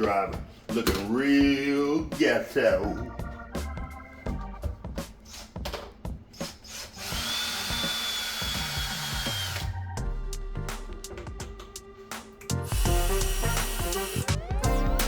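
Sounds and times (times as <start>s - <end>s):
background music: 0.0s - 15.0s
cordless drill motor whine: 7.0s - 9.7s, 12.7s - 14.4s.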